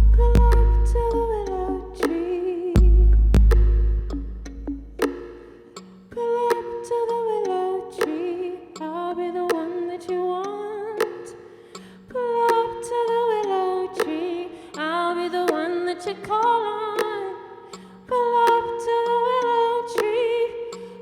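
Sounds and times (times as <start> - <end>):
woman singing wordless melody: 0.0 - 3.4, 6.0 - 21.0
held low note: 0.0 - 5.0
sharp percussive clicks: 0.0 - 10.1, 11.0 - 13.2, 13.9 - 17.9, 18.5 - 18.9.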